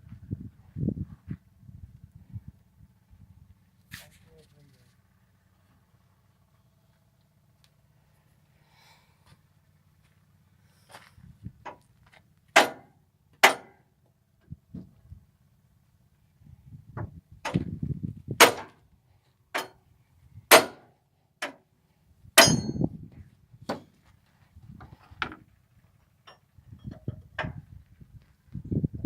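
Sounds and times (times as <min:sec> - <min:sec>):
sharp ringing knocks: 0:12.6 - 0:13.8, 0:20.5 - 0:21.6, 0:22.4 - 0:22.9.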